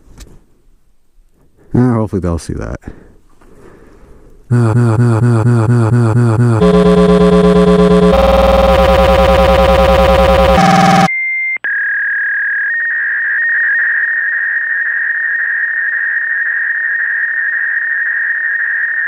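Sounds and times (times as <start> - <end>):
high-pitched electronic tone: 4.5 - 11.1
loud dense pitched sound: 4.5 - 11.1.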